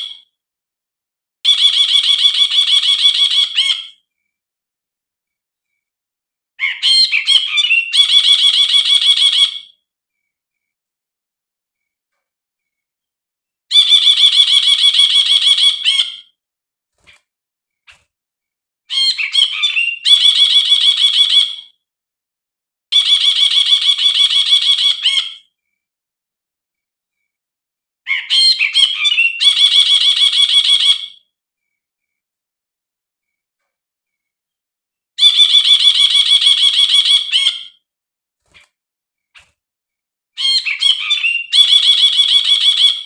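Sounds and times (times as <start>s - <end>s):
bulbul chattering song: 6.6s - 10.7s, 13.7s - 16.4s, 18.9s - 21.8s, 28.1s - 32.2s, 35.2s - 37.8s, 40.4s - 43.0s.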